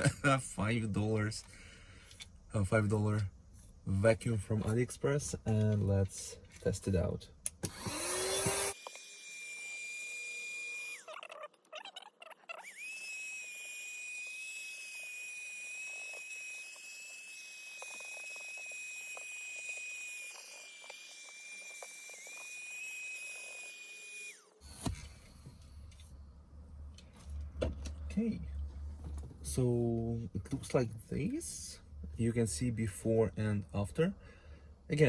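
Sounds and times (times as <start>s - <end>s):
handheld vacuum whining: 7.5s - 26.1s.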